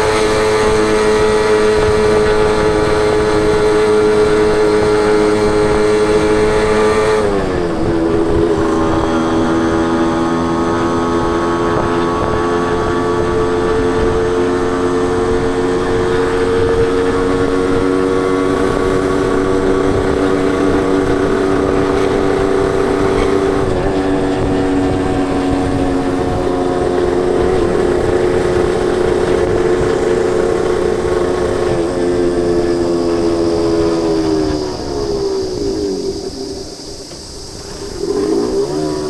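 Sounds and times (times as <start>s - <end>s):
motorcycle engine cruising: 0.0s - 39.0s
rushing noise: 17.8s - 39.0s.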